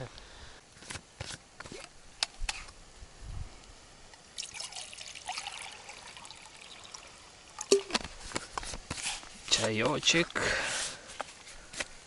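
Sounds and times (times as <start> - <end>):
water pouring into a mug: 4.4 - 7.9.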